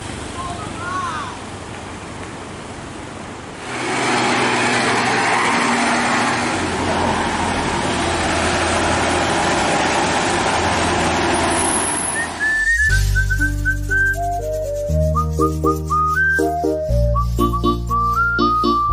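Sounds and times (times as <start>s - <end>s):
diesel engine labouring: 0.0s - 18.9s
rushing noise: 3.5s - 14.8s.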